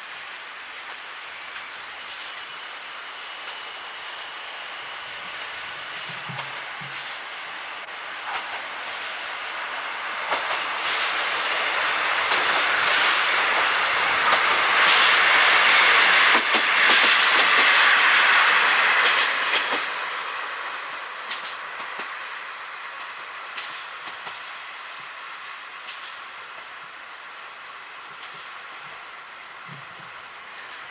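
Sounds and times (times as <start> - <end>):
train passing rumble: 0.0 - 30.9.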